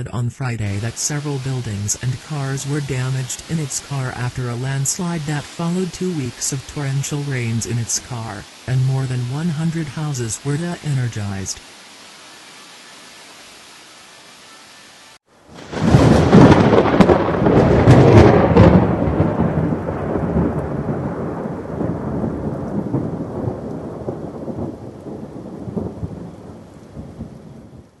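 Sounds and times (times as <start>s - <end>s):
thunder crack and rumble: 15.5s - 28.0s.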